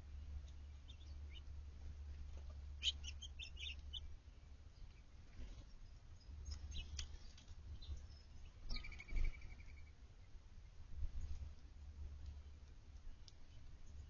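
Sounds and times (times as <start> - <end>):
low steady rumble: 0.0 - 14.0
songbirds chirping: 0.0 - 14.0
bird trill: 2.8 - 4.1, 6.2 - 10.0.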